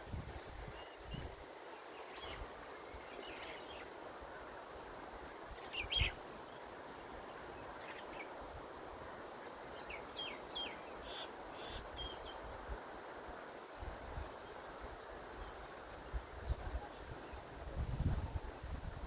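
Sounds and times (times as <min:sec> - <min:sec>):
steady outdoor hiss: 0:00.0 - 0:19.0
birds chirping: 0:05.6 - 0:06.6.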